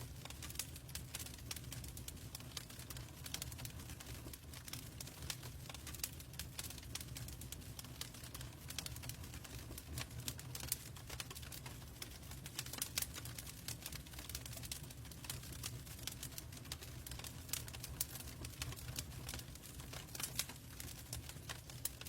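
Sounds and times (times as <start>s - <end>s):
logs crackling in fireplace: 0.0s - 22.0s.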